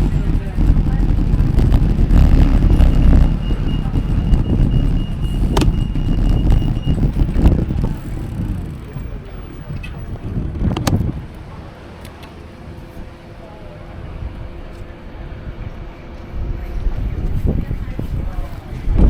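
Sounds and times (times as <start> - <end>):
faint high whine: 0.0 - 10.5
wind on microphone: 0.0 - 11.8, 13.9 - 19.0
traffic rumble: 0.0 - 19.0
sharp clicks: 0.2 - 11.1.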